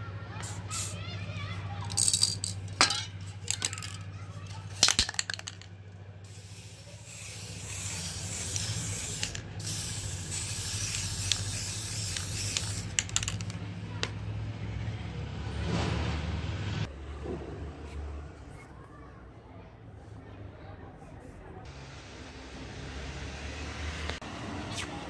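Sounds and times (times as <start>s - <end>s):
spray paint can hissing: 0.4s - 1.0s, 1.9s - 13.6s.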